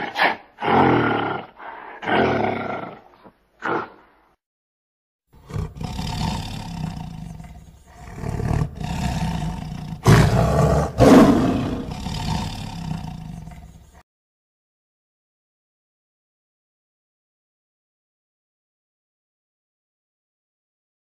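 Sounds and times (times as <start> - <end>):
tiger roaring: 0.0 - 4.0, 5.4 - 14.0.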